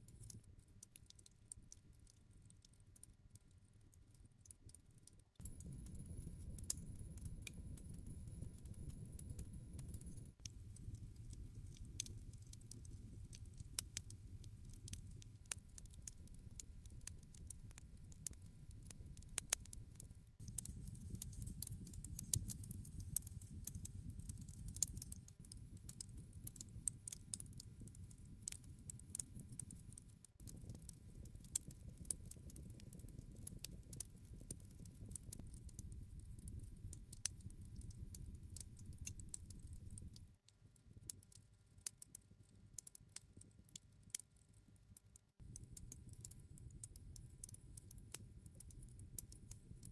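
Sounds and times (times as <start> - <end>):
campfire crackling: 9.8 - 17.5, 20.5 - 40.2.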